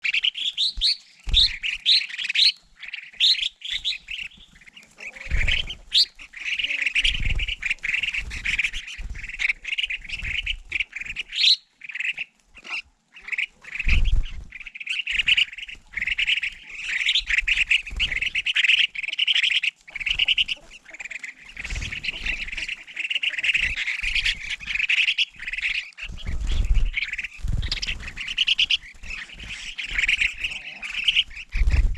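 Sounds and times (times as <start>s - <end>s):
flock of birds chattering: 0.0s - 31.9s.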